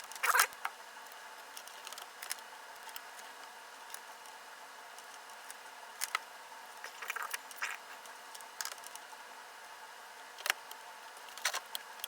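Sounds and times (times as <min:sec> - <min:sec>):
small clicks of parts: 0:00.0 - 0:04.4, 0:05.0 - 0:06.2, 0:07.0 - 0:09.1, 0:10.4 - 0:12.0.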